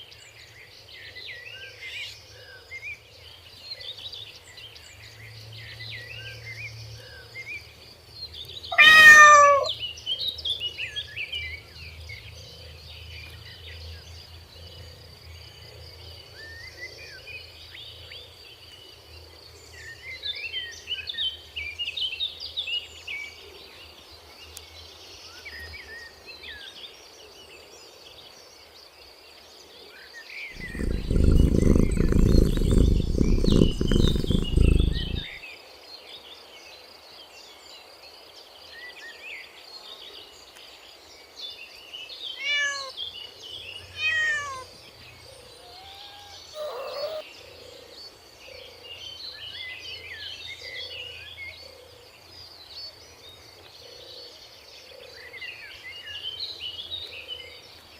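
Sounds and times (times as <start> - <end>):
birdsong: 8.3 - 10.0, 30.6 - 35.4, 42.1 - 49.2
cat meowing: 8.8 - 9.7, 30.6 - 35.2, 42.4 - 42.9, 44.0 - 44.7, 45.6 - 47.2.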